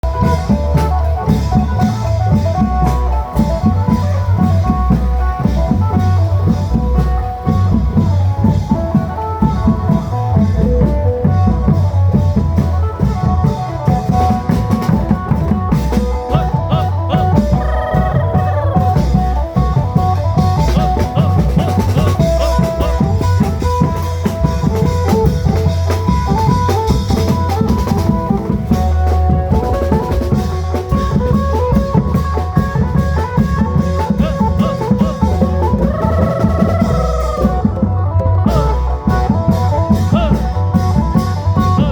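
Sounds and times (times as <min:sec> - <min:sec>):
heavy bass drum beat: 0:00.0 - 0:41.9
long drums: 0:00.0 - 0:41.9
lute melody: 0:00.0 - 0:41.9.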